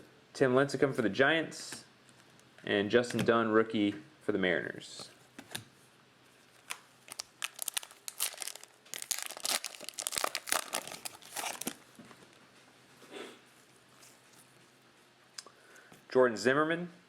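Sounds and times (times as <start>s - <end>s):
foil wrapper tearing and crinkling: 6.6s - 11.8s.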